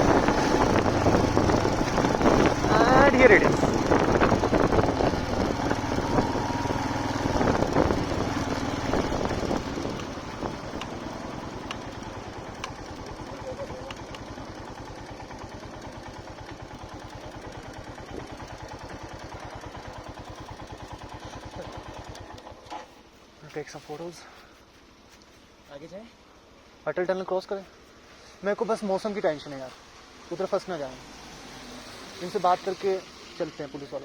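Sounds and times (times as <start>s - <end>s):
motorcycle engine idling: 0.0s - 23.3s.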